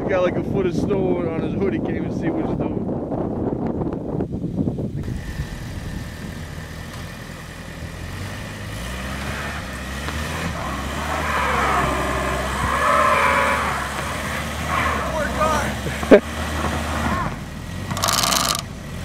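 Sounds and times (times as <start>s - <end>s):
car engine revving: 5.0s - 19.0s.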